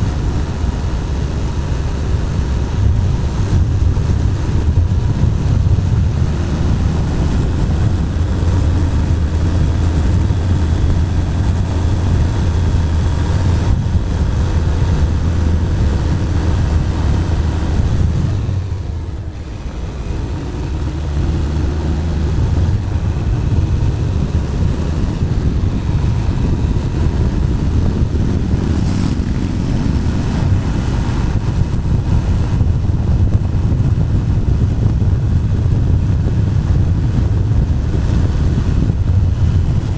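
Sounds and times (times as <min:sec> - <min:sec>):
motorcycle engine running: 0:00.0 - 0:39.9
wind rumbling over camera: 0:00.0 - 0:39.9.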